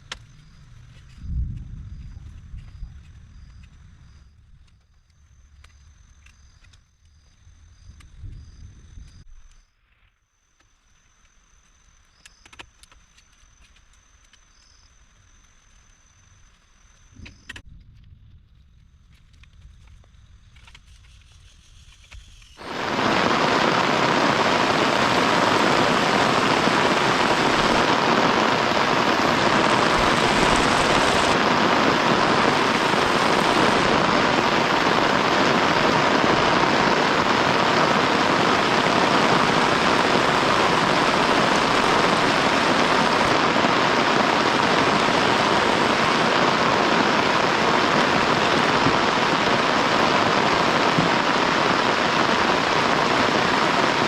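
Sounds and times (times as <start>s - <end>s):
heavy rain: 22.6s - 54.0s.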